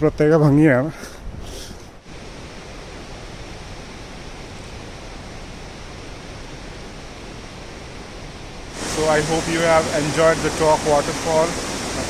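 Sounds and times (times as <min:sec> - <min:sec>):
waterfall rushing: 0:08.7 - 0:12.0.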